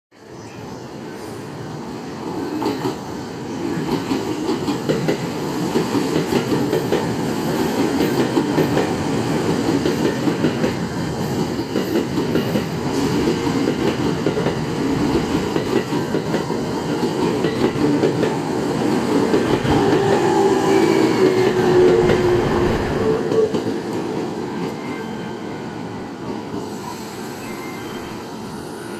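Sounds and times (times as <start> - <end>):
brief whining tone: 26.8 - 28.3.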